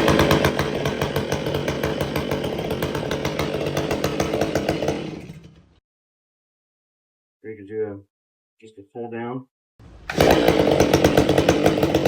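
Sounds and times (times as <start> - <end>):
chainsaw running: 0.0 - 5.8, 9.8 - 12.0.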